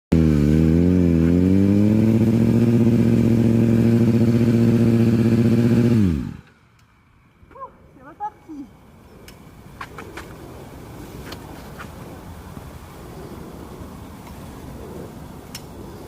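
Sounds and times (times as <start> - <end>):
motorcycle engine revving: 0.1 - 6.7.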